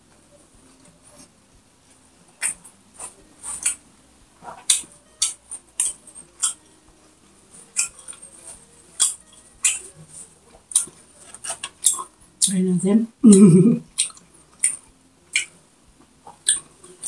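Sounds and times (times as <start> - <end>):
chewing with wet mouth smacks: 13.9 - 15.5.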